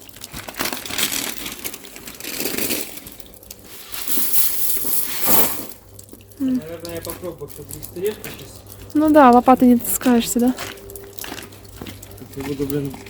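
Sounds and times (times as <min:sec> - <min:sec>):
shovel scraping into wet gravel: 0:01.0 - 0:05.8.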